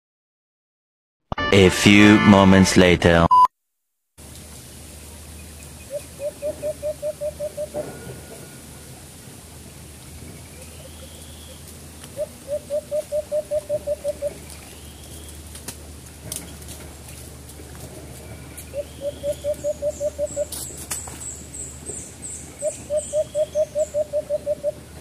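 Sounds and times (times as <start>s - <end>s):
low hooting bird notes: 4.6s - 9.7s, 10.4s - 15.5s, 18.2s - 25.0s.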